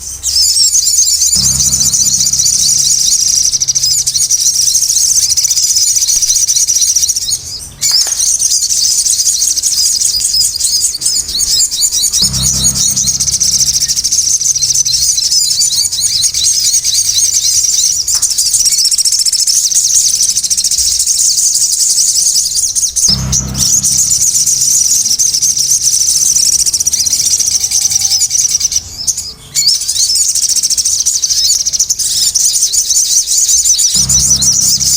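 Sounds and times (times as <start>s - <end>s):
birds chirping and trilling: 0.0s - 34.9s
low thud: 1.3s - 4.9s, 12.2s - 15.1s, 23.1s - 26.1s, 34.0s - 34.9s.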